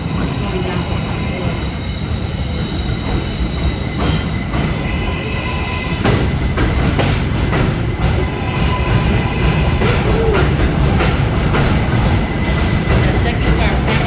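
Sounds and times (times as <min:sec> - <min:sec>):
subway train rumble: 0:00.0 - 0:14.0
wheels clacking over rail joints: 0:03.9 - 0:14.0.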